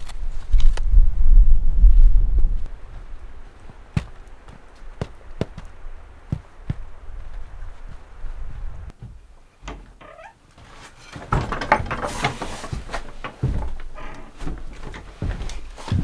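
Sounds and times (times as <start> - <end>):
rustling: 2.7 - 16.0
wooden knocks and clatter: 8.9 - 16.0.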